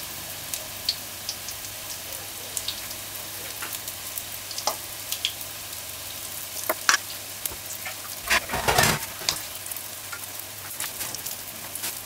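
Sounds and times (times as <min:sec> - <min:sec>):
fritters sizzling in hot oil: 0:00.0 - 0:12.0
oil popping and crackling: 0:02.6 - 0:12.0.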